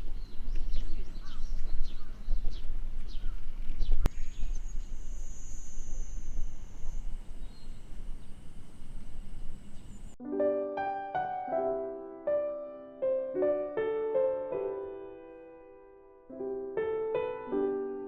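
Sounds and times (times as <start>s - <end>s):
bird chirps: 0.0s - 10.2s
low wind rumble: 0.0s - 10.2s
soft piano music: 4.0s - 18.0s
steady high-pitched whine: 4.1s - 10.2s.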